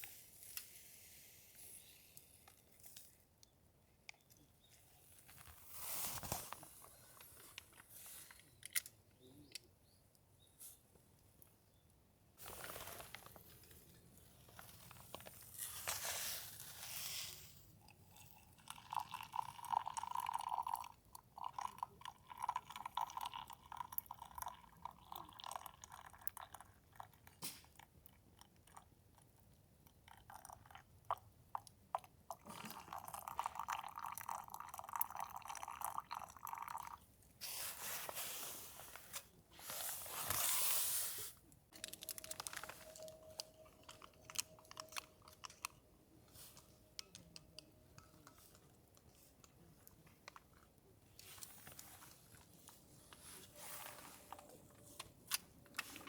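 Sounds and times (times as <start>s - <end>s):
close-up crunching: 41.7s - 45.9s.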